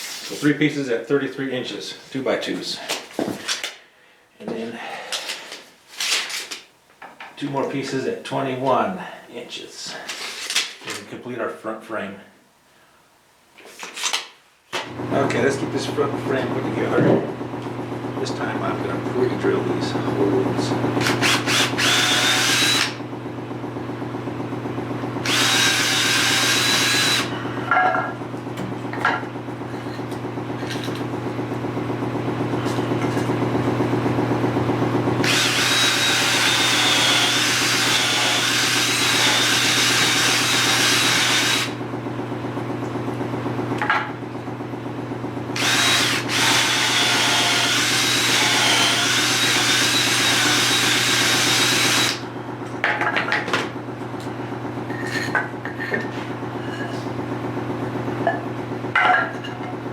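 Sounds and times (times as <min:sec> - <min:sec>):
power drill motor running: 0:20.3 - 0:27.6, 0:35.1 - 0:41.8, 0:45.6 - 0:52.3
drill bit cutting into wood: 0:21.0 - 0:23.0, 0:25.2 - 0:27.4, 0:35.2 - 0:41.8, 0:45.6 - 0:52.2.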